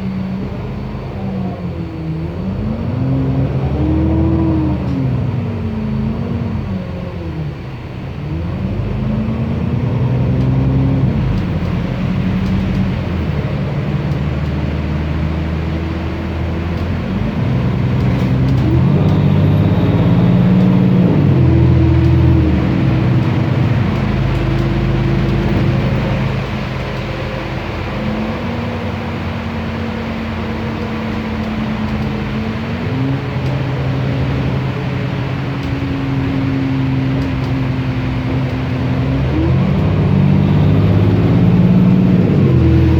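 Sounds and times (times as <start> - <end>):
bus diesel engine revving: 0.0 - 42.9.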